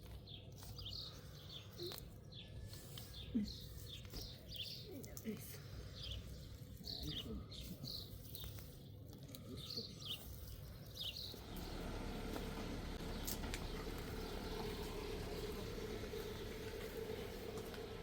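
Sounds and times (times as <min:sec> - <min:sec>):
low hum: 0:11.4 - 0:18.0.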